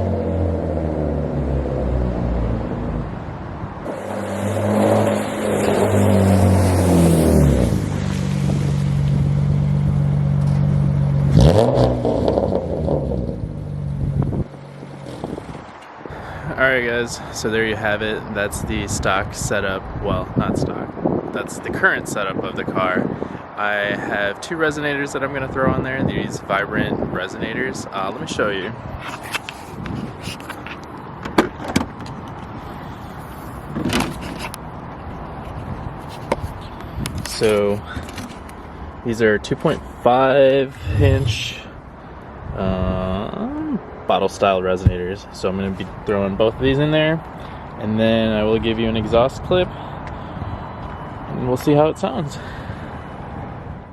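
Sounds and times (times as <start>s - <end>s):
exhaust crackles: 40.7s - 41.8s.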